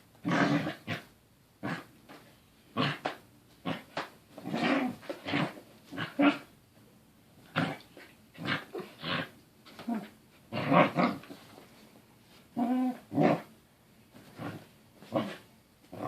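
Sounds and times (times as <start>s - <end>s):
dog grumbling vocalisations: 7.5s - 11.2s, 12.6s - 13.5s.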